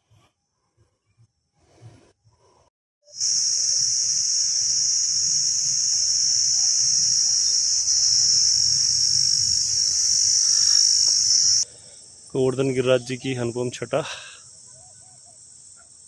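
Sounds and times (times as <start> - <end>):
insects buzzing high-pitched: 3.1 - 16.0.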